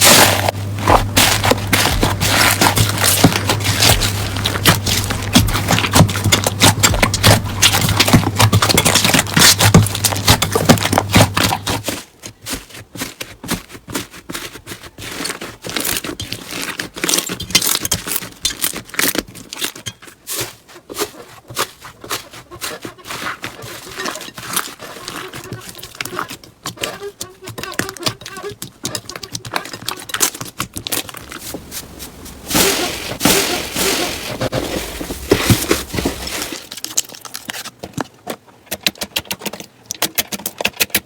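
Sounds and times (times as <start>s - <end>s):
slime crackling and popping: 0.0s - 11.8s.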